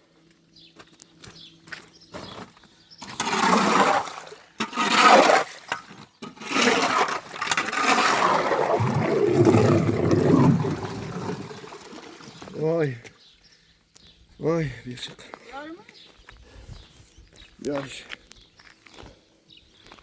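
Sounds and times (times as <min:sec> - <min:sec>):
water gushing and splashing: 0:07.6 - 0:12.6.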